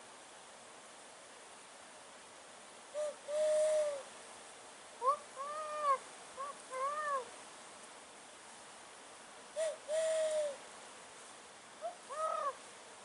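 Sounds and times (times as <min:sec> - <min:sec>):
man imitating owl hoots: 0:03.0 - 0:04.0, 0:05.0 - 0:07.3, 0:09.6 - 0:10.6, 0:11.8 - 0:12.6.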